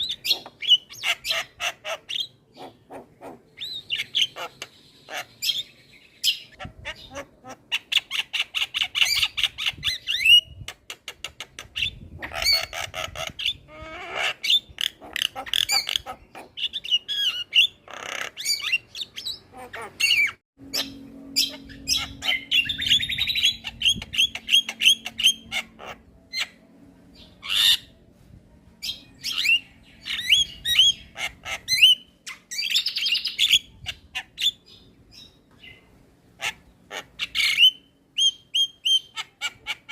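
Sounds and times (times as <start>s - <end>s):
bird squawking calls: 0.0s - 10.3s, 12.2s - 26.6s, 27.4s - 27.9s, 36.4s - 39.9s.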